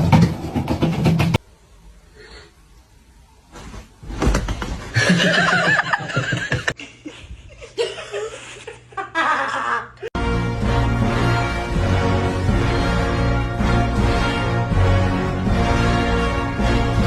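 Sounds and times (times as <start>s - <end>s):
people laughing: 4.9s - 10.1s.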